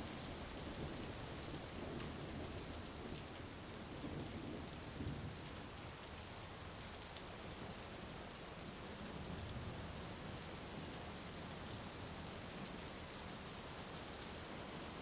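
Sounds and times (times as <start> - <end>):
heavy rain falling: 0.0 - 15.0
low rumble of thunder: 0.6 - 5.5.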